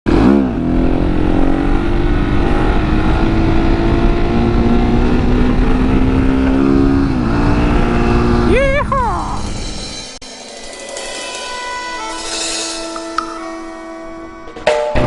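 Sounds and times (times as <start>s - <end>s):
motorcycle engine running: 0.1s - 10.2s
wind rumble: 0.4s - 10.2s.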